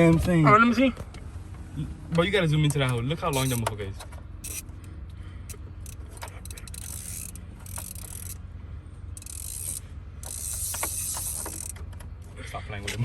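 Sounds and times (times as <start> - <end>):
truck engine idling: 0.0 - 13.0
socket ratchet clicking: 2.7 - 4.7, 5.8 - 8.4, 9.2 - 11.9.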